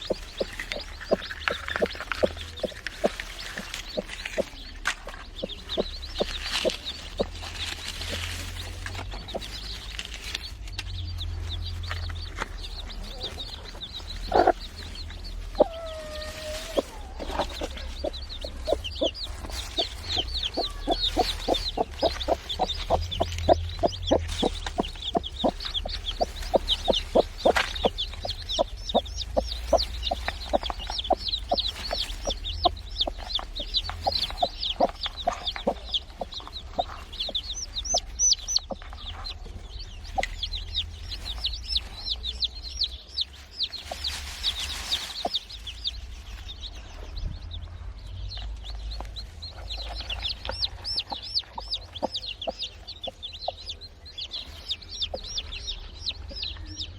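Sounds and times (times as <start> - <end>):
hen clucking: 0.0 - 9.9, 12.7 - 43.0, 49.6 - 56.4
chicks peeping: 0.0 - 56.9.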